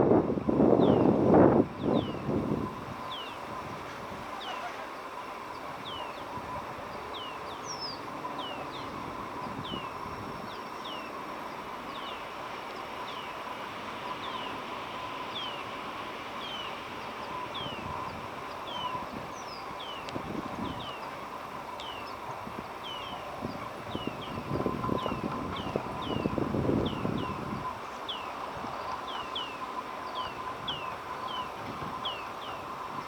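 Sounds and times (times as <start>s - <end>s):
faint outdoor hum: 0.0s - 33.0s.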